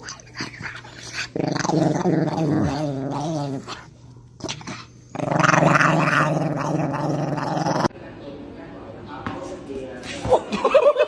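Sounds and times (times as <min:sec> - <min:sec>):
dog growling: 0:00.0 - 0:07.9.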